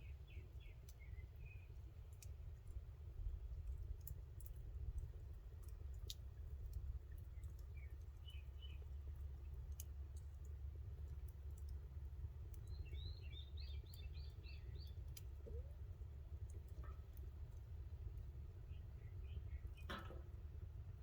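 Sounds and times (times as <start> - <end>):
campfire crackling and popping: 3.4 - 18.8
bird chirping: 12.6 - 15.0.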